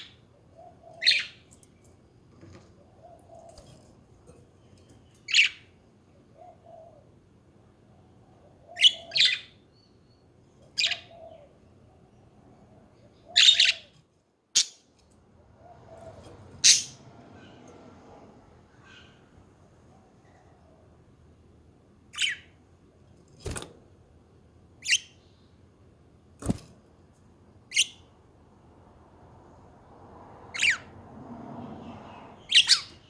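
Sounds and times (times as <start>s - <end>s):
budgerigars chirping: 13.3s - 13.8s, 16.6s - 17.0s, 32.4s - 33.0s.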